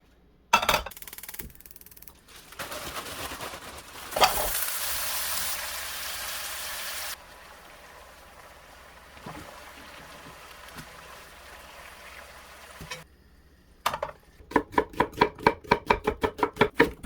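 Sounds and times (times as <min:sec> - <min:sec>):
food sizzling in a frying pan: 0:04.0 - 0:13.0.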